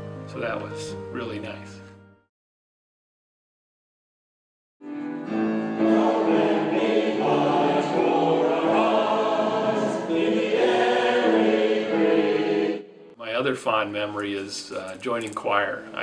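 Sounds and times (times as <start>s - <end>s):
church choir singing: 4.9s - 13.2s.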